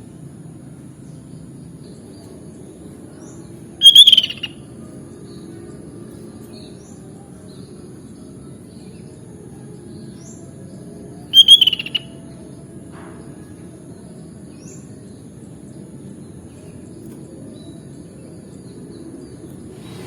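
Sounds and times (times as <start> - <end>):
low background hum: 0.0 - 20.0
bird song burst: 3.2 - 4.6, 11.3 - 12.1
faint short bird chirps: 3.8 - 4.5, 11.4 - 12.0.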